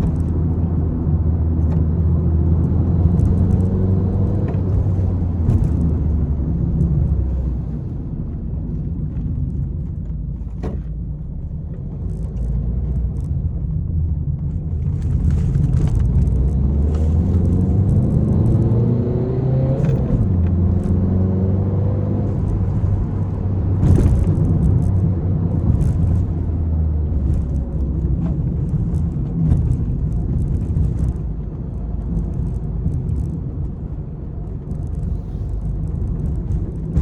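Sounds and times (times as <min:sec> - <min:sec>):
car engine accelerating: 0:00.0 - 0:37.0
road rumble: 0:00.0 - 0:37.0.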